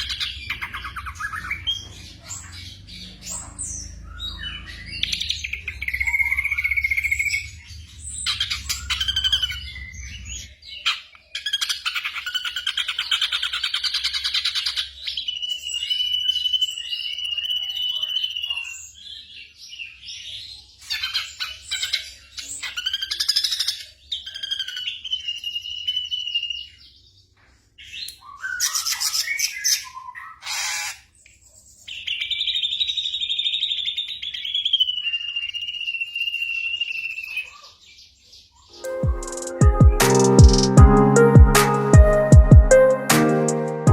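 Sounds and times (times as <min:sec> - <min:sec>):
bird song with whistles and trills: 0:00.0 - 0:27.1, 0:27.8 - 0:40.8.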